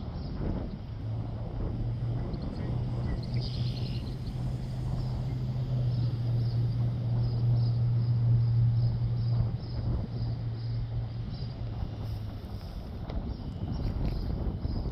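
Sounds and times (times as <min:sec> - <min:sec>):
constant low hum: 0:00.0 - 0:14.9
small bird chirping: 0:02.3 - 0:05.4.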